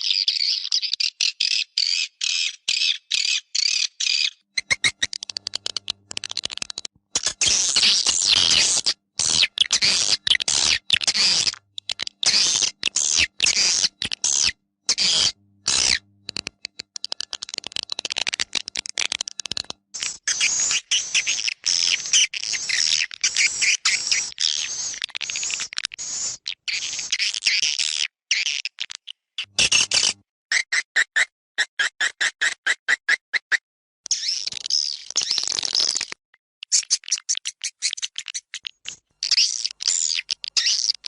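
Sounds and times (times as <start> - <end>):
swiftlets chirping and clicking: 4.6 - 27.4, 29.4 - 30.2.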